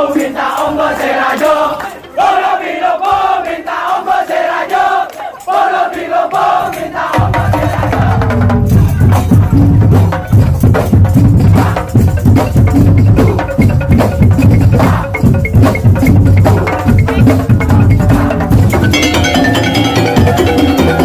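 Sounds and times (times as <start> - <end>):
wooden slit drums: 0.0 - 21.0
heavy bass drums: 7.2 - 21.0.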